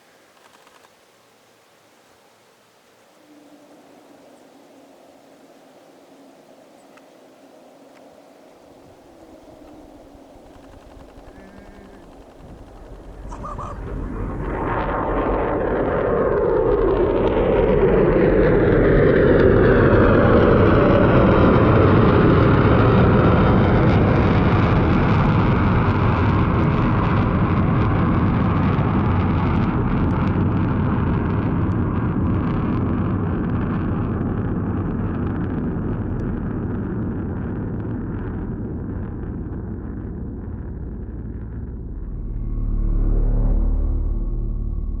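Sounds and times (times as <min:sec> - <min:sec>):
jet aircraft flying past: 0:08.6 - 0:30.3, 0:41.0 - 0:45.0.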